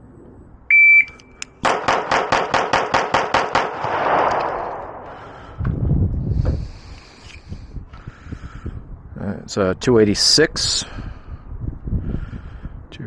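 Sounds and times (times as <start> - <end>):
shot timer beep: 0.7 - 1.4
rapid pistol shots: 1.6 - 5.2
low rumble: 3.9 - 7.8.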